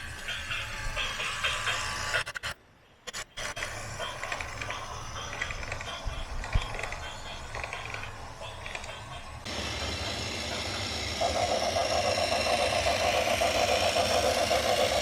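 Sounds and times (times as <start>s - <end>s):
low engine rumble: 3.8s - 15.0s.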